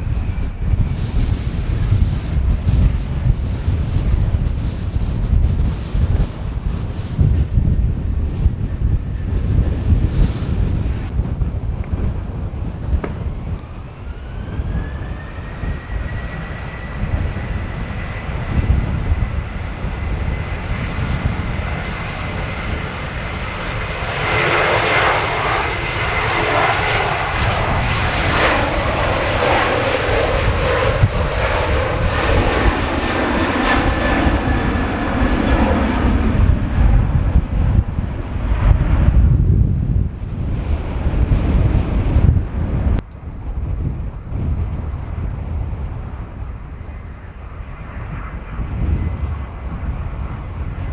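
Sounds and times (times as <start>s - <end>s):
jet engine roar: 0.0s - 50.9s
jet engines spooling up: 0.0s - 50.9s
wind rumble on microphone: 0.0s - 50.9s.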